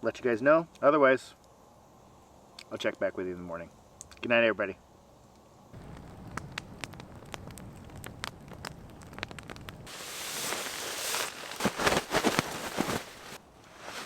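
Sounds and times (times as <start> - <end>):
campfire crackling and popping: 5.2 - 14.0
rustling and shuffling: 9.9 - 14.0.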